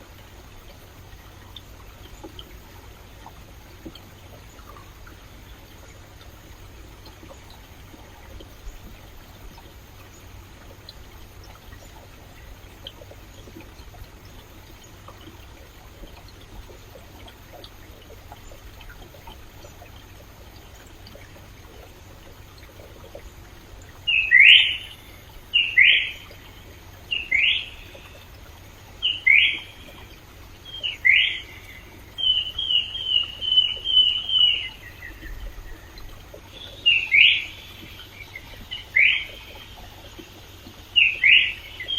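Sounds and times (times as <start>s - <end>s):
stream water running: 0.0s - 41.9s
bird calling: 23.9s - 28.3s, 29.0s - 40.0s, 41.0s - 41.9s.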